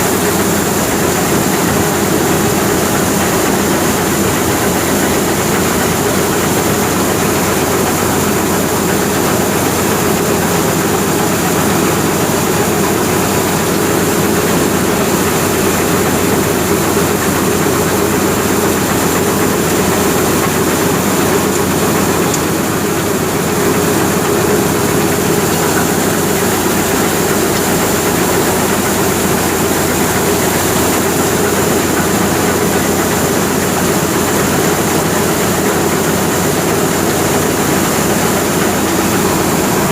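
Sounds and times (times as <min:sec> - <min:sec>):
tractor and thresher running: 0:00.0 - 0:39.9.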